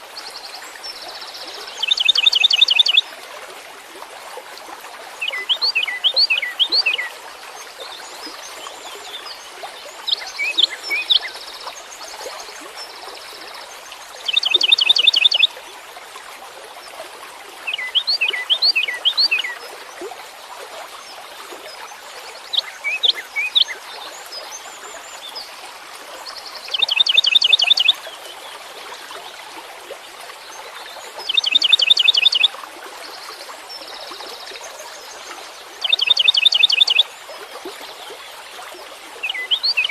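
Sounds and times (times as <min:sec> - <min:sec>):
songbird singing: 0:00.3 - 0:03.0, 0:05.2 - 0:07.1, 0:07.9 - 0:13.6, 0:14.2 - 0:15.5, 0:17.6 - 0:19.6, 0:22.4 - 0:23.8, 0:26.4 - 0:28.0, 0:31.2 - 0:37.1, 0:39.2 - 0:39.9.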